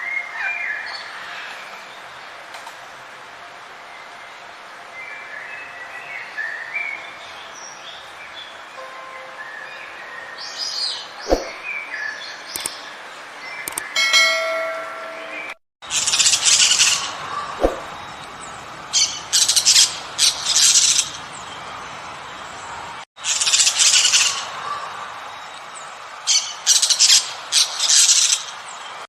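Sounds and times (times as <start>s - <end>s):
birds chirping: 4.0s - 29.0s
harsh noisy bird calls: 15.8s - 29.0s.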